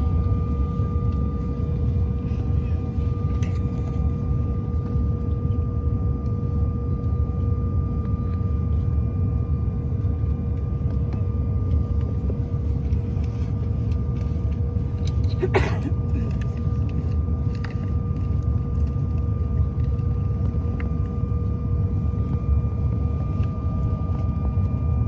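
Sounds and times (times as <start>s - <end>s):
airliner cabin rumble: 0.0s - 25.0s
two-tone engine whine: 0.0s - 25.0s.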